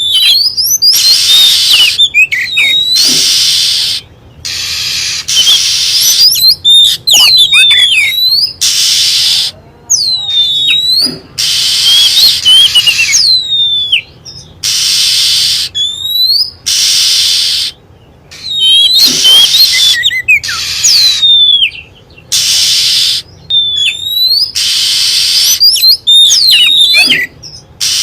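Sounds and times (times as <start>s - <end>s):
bird sweeping whistles: 0.0s - 17.8s, 18.4s - 28.0s
bird harsh rasping calls: 0.0s - 28.0s.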